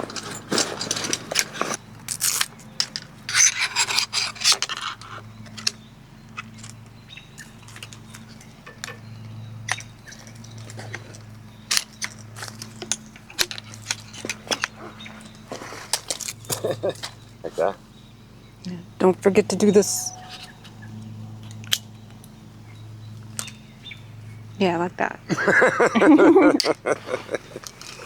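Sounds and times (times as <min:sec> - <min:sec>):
objects clicking and scraping: 0:00.0 - 0:17.2, 0:26.6 - 0:28.0.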